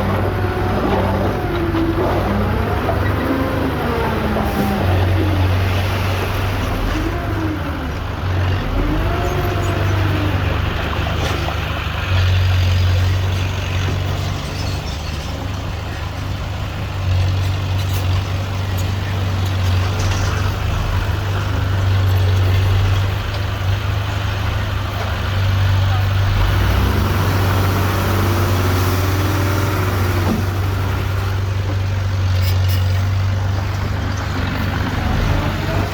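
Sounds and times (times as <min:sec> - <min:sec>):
heavy diesel engine running: 0:00.0 - 0:35.9.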